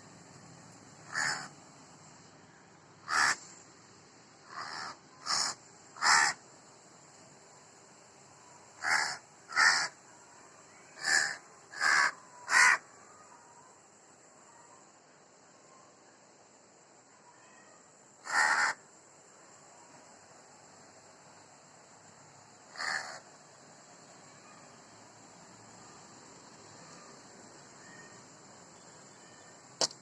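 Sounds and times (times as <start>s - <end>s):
crow cawing: 1.1s - 1.5s, 3.0s - 3.4s, 4.5s - 6.4s, 8.8s - 10.0s, 11.0s - 12.8s, 18.2s - 18.8s, 22.7s - 23.2s.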